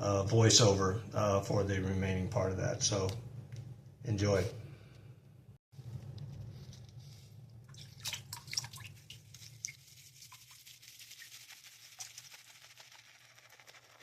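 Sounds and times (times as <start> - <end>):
wet lather squishing on skin: 7.7 - 13.9.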